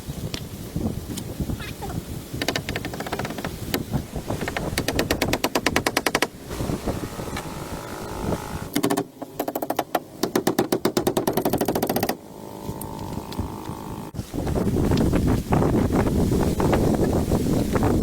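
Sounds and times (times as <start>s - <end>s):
small motorbike engine popping: 2.4s - 15.8s.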